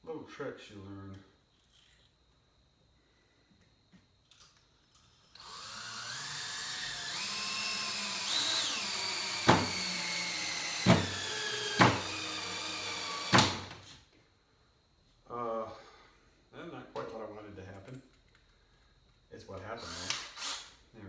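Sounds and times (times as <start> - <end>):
power drill motor whining: 5.4 - 13.9, 19.8 - 20.7.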